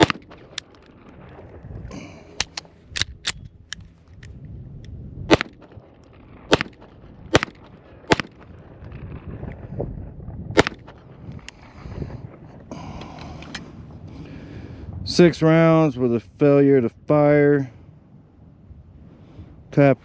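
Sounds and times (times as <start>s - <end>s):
pistol shots: 0.0s - 0.6s, 5.3s - 5.8s, 6.4s - 8.6s, 10.6s - 11.0s.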